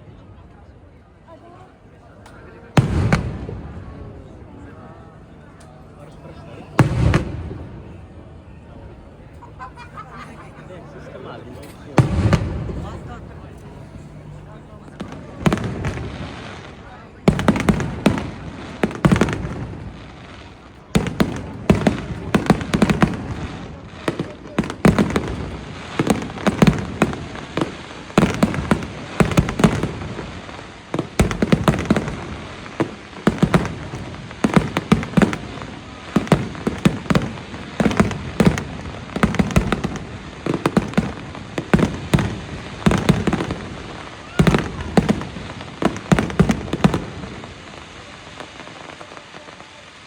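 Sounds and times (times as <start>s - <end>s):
fireworks bursting: 2.7s - 4.8s, 5.4s - 8.2s, 9.6s - 50.0s.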